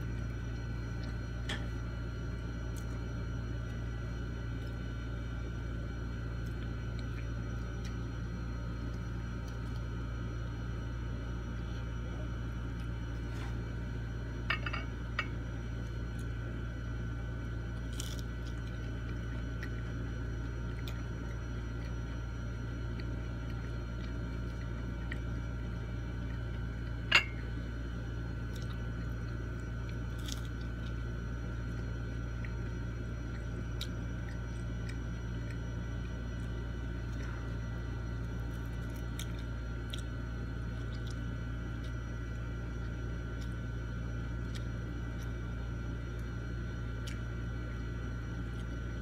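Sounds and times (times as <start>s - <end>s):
steady low hum: 0.0s - 49.0s
person chewing food: 17.7s - 48.9s.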